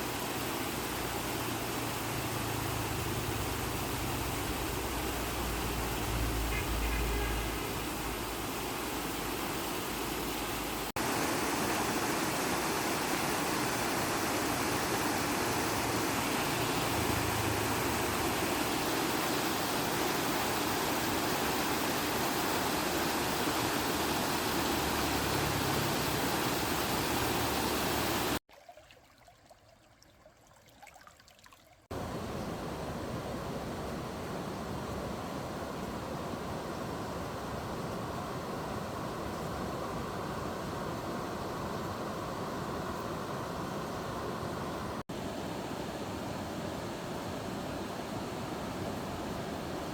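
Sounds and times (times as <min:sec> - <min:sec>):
water rushing below a dam: 0:00.0 - 0:28.4.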